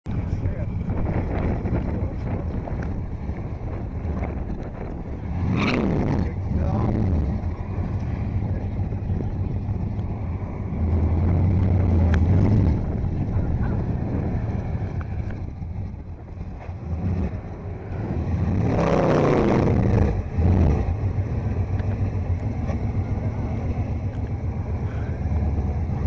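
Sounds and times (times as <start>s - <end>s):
car engine revving hard: 5.2s - 9.3s, 16.8s - 21.2s.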